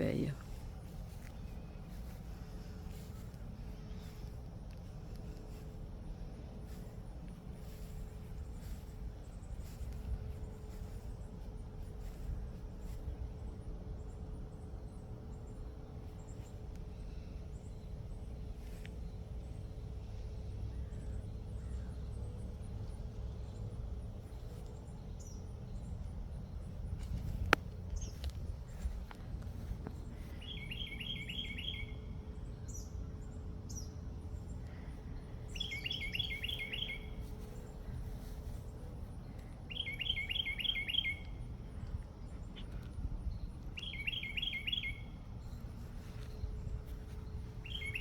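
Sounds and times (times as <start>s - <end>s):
bird chirp: 0.0s - 48.0s
songbird singing falling notes: 26.9s - 32.0s, 35.5s - 37.7s, 39.3s - 41.4s, 43.6s - 45.6s, 47.6s - 48.0s.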